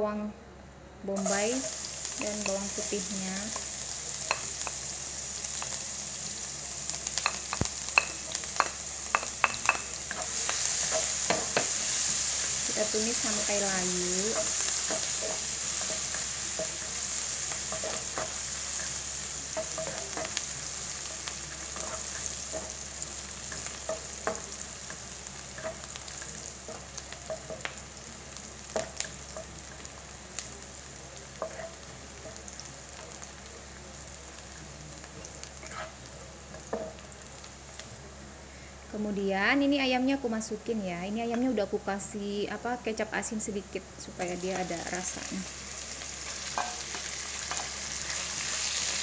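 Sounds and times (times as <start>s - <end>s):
onion sizzling in hot oil: 1.1s - 49.0s
spatula scraping wok: 7.0s - 27.7s, 31.4s - 32.4s, 35.6s - 36.0s
spatula tapping: 7.2s - 11.8s, 23.5s - 24.5s.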